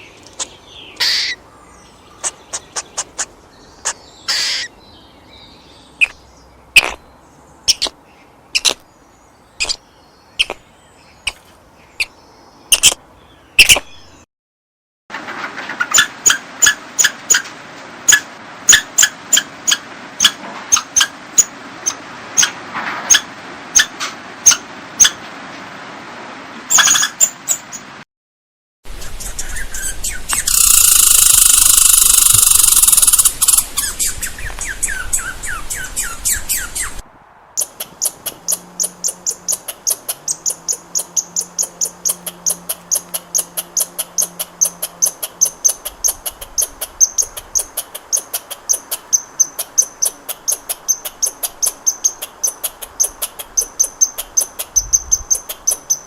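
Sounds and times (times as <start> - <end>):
squirrel alarm chirps: 30.3 - 34.2, 37.6 - 56.0.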